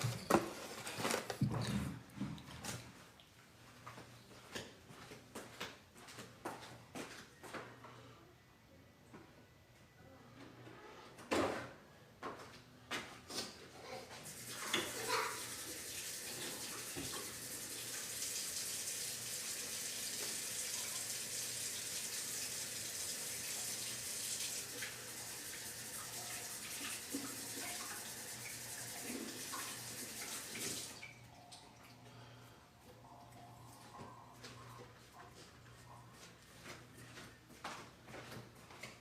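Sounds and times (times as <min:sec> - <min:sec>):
water running from a tap: 0:14.2 - 0:31.7.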